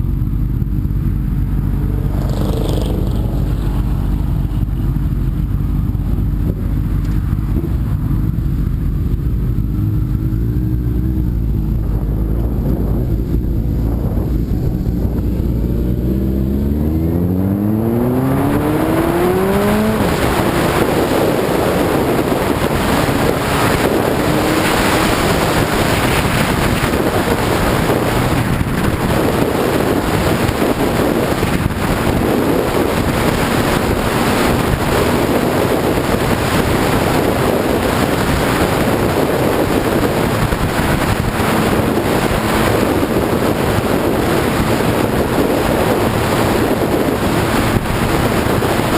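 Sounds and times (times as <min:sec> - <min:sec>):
motorcycle engine revving: 0:00.0 - 0:48.9
wind rushing over microphone: 0:00.0 - 0:48.9.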